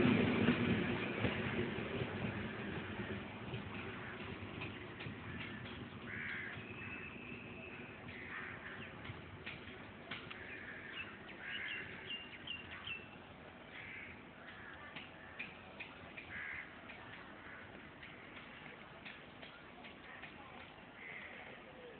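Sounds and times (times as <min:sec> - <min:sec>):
low background rumble: 0:00.0 - 0:19.0
crows cawing: 0:05.2 - 0:07.1, 0:08.1 - 0:09.0, 0:10.4 - 0:12.2, 0:13.7 - 0:15.6, 0:16.2 - 0:18.4, 0:21.0 - 0:21.6.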